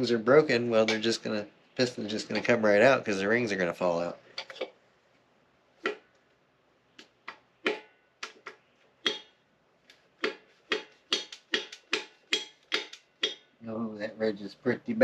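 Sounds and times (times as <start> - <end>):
sharp taps on piston: 10.2 - 13.4.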